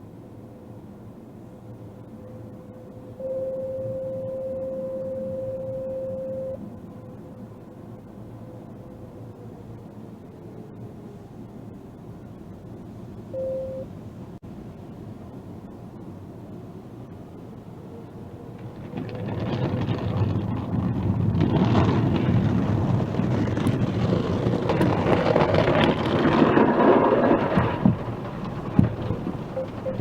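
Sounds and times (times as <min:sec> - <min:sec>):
car wash spraying and scrubbing: 0:18.5 - 0:30.0
low thumps: 0:18.6 - 0:30.0.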